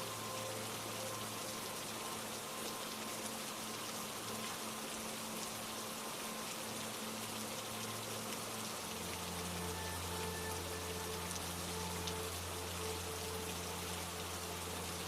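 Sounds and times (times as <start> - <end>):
rain patter: 0.0 - 15.0
faint low held notes: 8.6 - 15.0.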